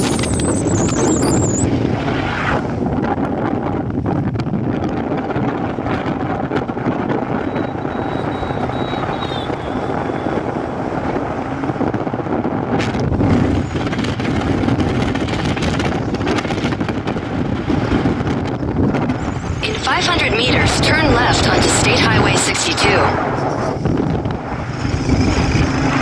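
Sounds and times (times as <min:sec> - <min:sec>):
wind rushing on microphone: 0:00.0 - 0:26.0
motorbike engine: 0:07.0 - 0:17.3.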